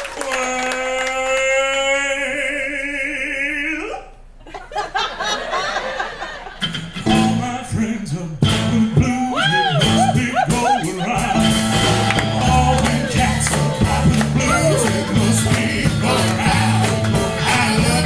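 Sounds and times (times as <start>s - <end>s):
rockabilly band playing: 6.5s - 18.0s.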